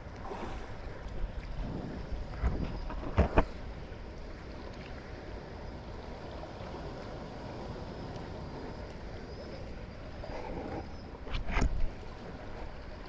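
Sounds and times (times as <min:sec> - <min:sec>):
sea water moving around kayak: 0:00.0 - 0:13.0
wind rumble on microphone: 0:01.1 - 0:04.2, 0:10.0 - 0:13.0.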